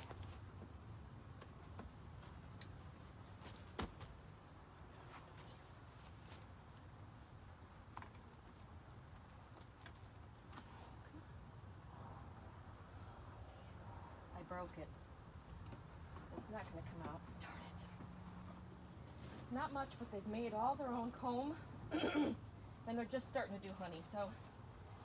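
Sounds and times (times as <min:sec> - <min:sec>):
small bird chirping: 0:14.6 - 0:18.0.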